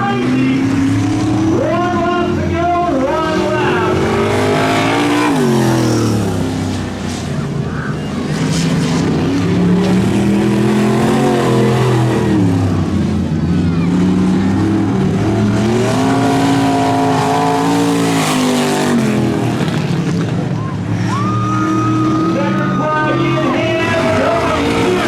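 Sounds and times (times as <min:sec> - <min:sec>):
truck engines revving: 0:00.0 - 0:25.0.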